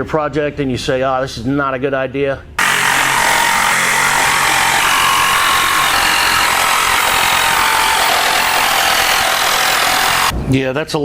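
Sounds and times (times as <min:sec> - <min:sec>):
power saw cutting wood: 0:02.6 - 0:10.3.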